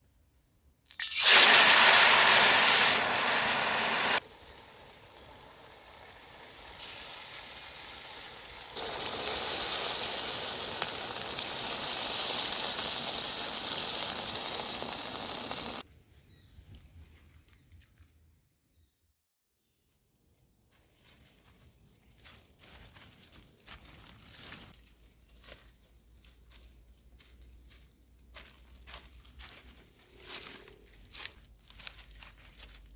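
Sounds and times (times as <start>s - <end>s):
food hissing and sizzling: 1.0s - 15.8s.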